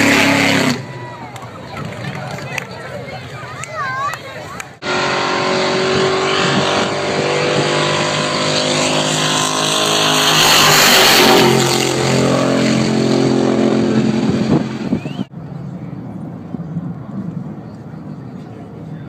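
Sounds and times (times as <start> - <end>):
performance car engines revving: 0.0 - 2.7, 4.6 - 15.3.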